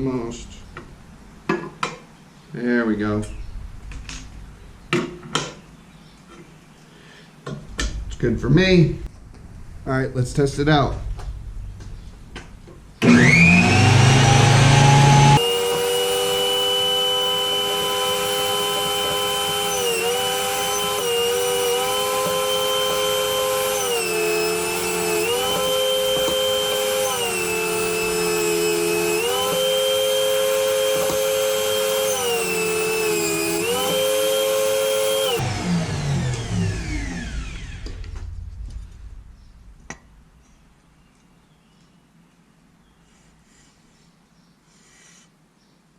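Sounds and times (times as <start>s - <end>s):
jointer whining: 13.0s - 38.6s.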